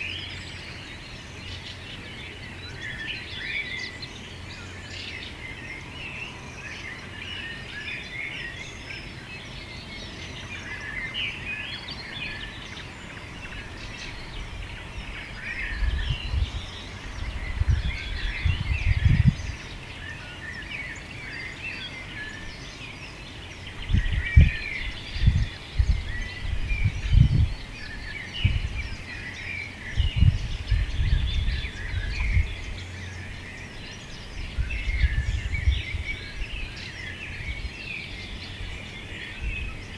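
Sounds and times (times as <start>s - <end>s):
songbirds chorus: 0.0s - 39.9s
wind buffeting microphone: 12.4s - 20.0s, 23.5s - 39.9s.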